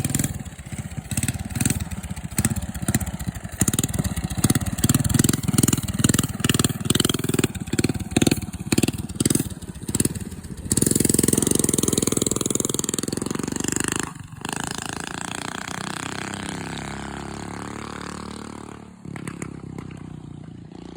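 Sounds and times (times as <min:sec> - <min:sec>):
small engine revving: 0:00.0 - 0:20.9.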